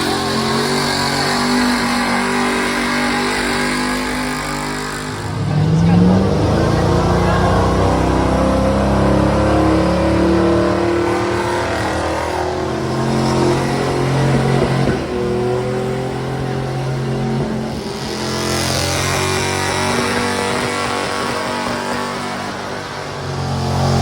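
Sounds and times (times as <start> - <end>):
truck engine revving under load: 0.0 - 24.0.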